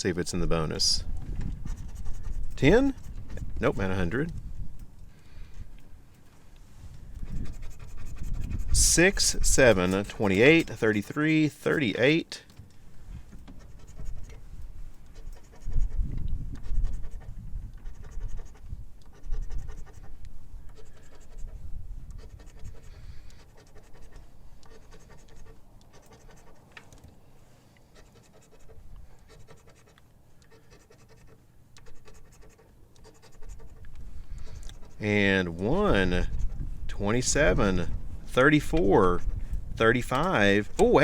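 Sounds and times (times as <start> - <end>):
lottery ticket being scratched: 1.6 - 4.4, 7.2 - 12.5, 13.5 - 14.4, 15.0 - 16.0, 16.6 - 26.8, 27.9 - 41.0.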